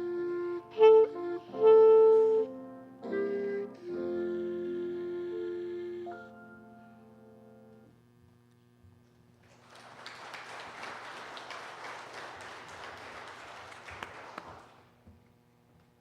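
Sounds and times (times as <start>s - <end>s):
piano chord: 0.0s - 7.9s
congregation applauding: 9.4s - 15.0s.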